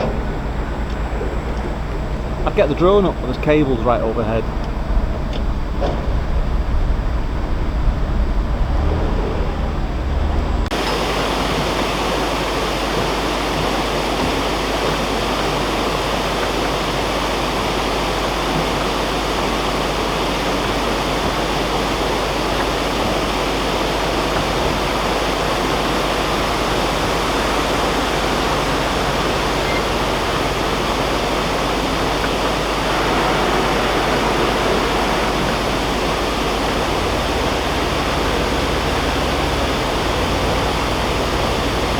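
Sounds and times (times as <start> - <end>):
water rushing through canal lock: 0.0 - 6.0, 10.7 - 41.9
deep low rumble: 4.4 - 10.8, 32.4 - 40.6.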